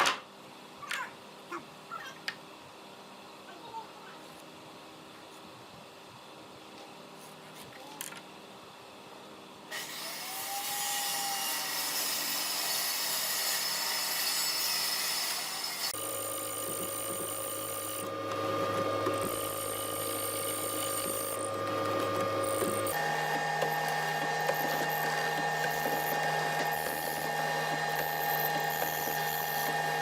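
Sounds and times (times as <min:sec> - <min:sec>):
power tool cutting or sanding wood: 0:09.7 - 0:30.0
machine humming: 0:15.9 - 0:30.0.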